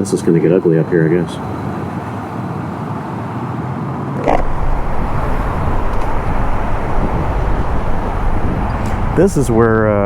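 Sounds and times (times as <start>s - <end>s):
motorcycle engine rumble: 4.2s - 10.0s
wind rush: 4.2s - 10.0s.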